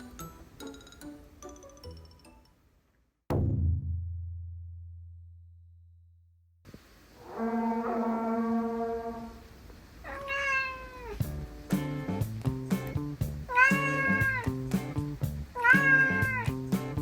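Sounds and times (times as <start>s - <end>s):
background music with steady beat: 0.0s - 2.7s, 11.2s - 17.0s
cat meowing: 10.0s - 11.2s, 13.5s - 14.6s, 15.6s - 16.6s.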